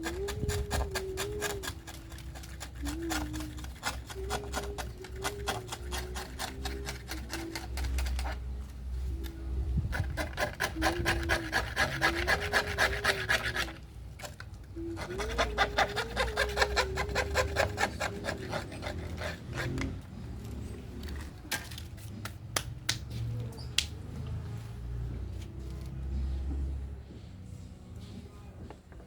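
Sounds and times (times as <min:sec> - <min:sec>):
tool rasping wood: 0:00.0 - 0:08.4, 0:09.9 - 0:13.8, 0:14.8 - 0:20.0.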